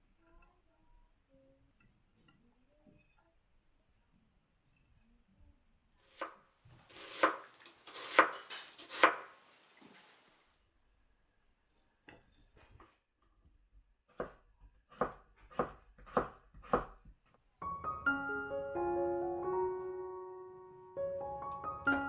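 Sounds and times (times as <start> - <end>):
knife chopping on cutting board: 6.2 - 9.3, 14.1 - 17.1.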